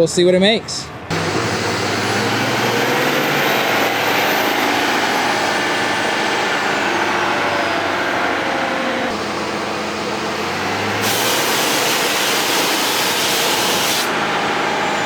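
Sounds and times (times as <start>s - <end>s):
diesel engine running under load: 1.0s - 15.0s
high turbo whistle: 10.8s - 15.0s.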